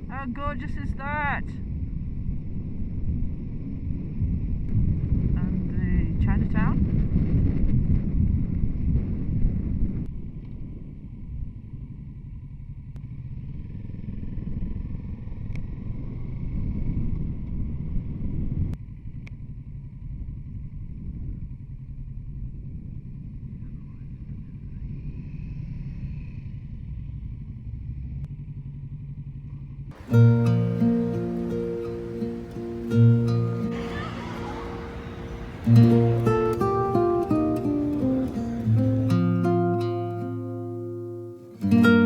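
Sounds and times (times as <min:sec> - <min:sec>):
motorcycle engine rumbling: 0:30.0 - 0:41.5.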